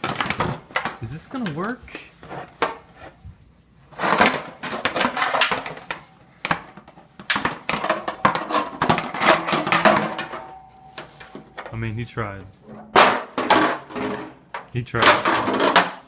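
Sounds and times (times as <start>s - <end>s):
metal objects clanging: 7.4s - 16.0s.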